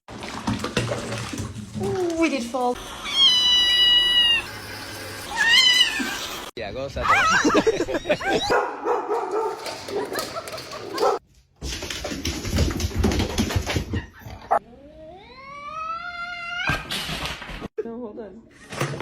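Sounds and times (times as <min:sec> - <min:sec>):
dog barking and whimpering: 0:08.2 - 0:11.2.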